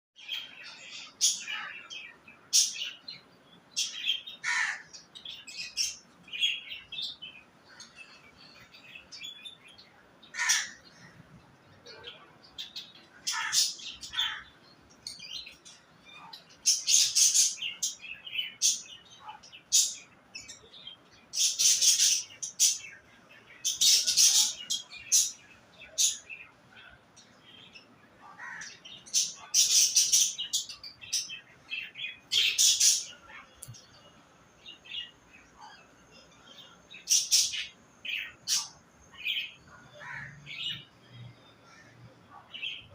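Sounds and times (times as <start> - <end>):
budgerigars chattering: 10.4 - 11.1, 13.3 - 14.4.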